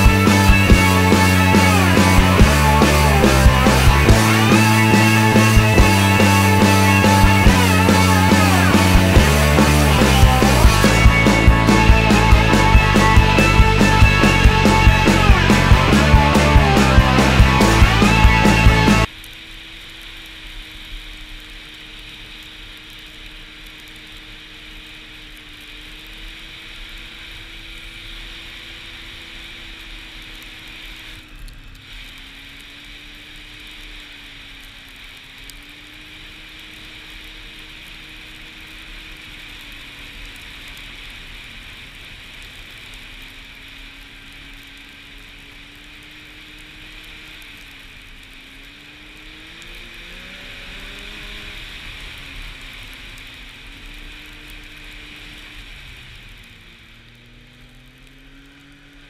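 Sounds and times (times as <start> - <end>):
snowmobile engine running: 0.0 - 59.0
hiss of wind and track: 19.0 - 59.0.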